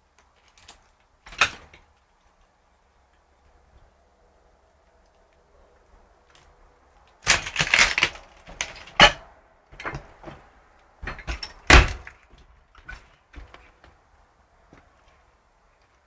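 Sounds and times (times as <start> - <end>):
debris crunching and cracking: 7.2 - 9.2.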